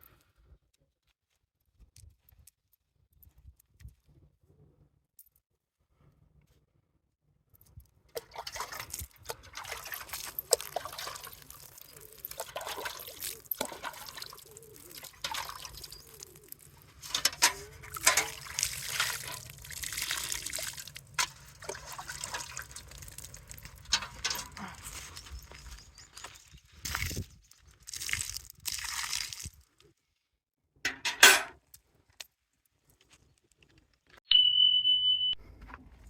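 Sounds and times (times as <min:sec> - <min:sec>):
water pouring and splashing: 0:08.1 - 0:25.6, 0:26.8 - 0:29.7.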